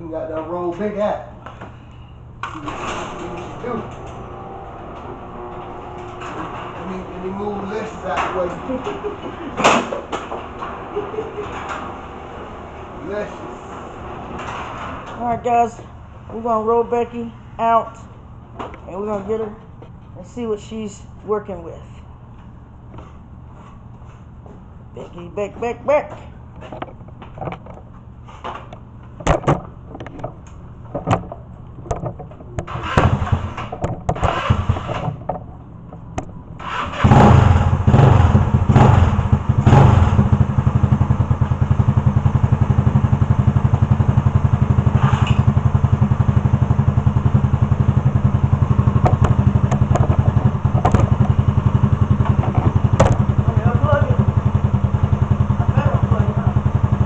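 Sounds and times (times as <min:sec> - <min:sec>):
vehicle engine starting and idling: 0:01.0 - 0:19.5, 0:28.8 - 0:57.0
knocks and thumps: 0:28.5 - 0:36.4, 0:49.0 - 0:51.4, 0:52.2 - 0:53.4.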